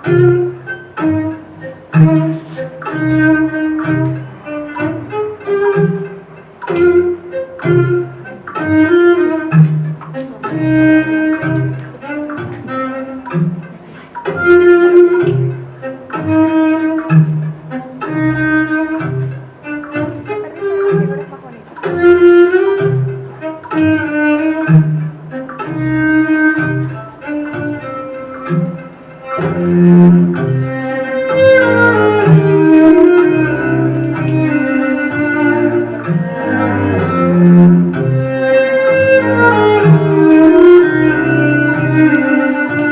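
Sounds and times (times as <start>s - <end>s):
bowed-string melody: 0.0s - 42.9s
bass line: 29.4s - 42.9s.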